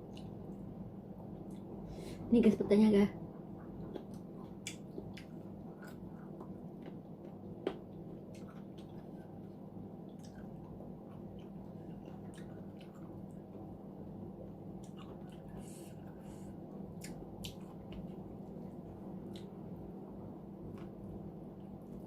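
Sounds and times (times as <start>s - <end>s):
steady low hum: 0.0s - 22.0s
person chewing: 3.8s - 13.2s, 14.8s - 16.3s, 16.9s - 18.2s.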